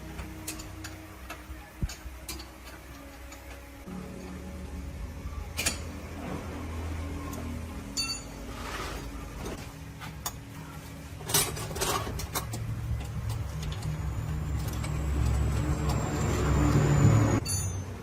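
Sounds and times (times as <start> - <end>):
sharp metallic clanks: 11.2 - 18.0
dump truck engine rumbling: 11.5 - 17.8.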